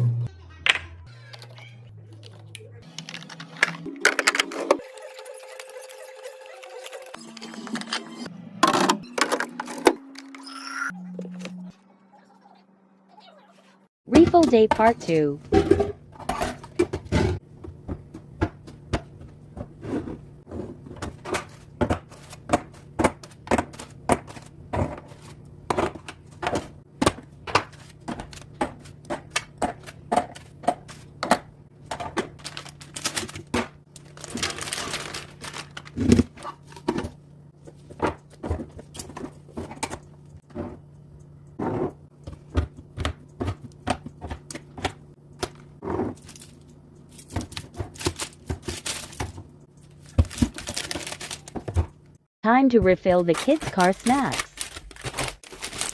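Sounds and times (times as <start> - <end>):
packets and containers clicking: 53.2 - 55.9.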